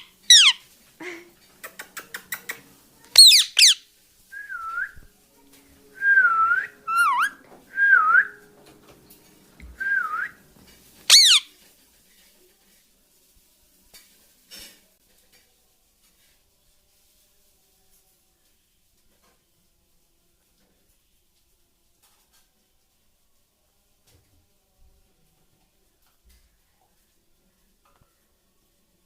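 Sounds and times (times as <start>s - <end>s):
parakeet squawks: 0.0s - 0.6s, 3.2s - 3.8s, 6.9s - 7.4s, 11.1s - 11.5s
soft wavering whistles: 6.0s - 8.4s.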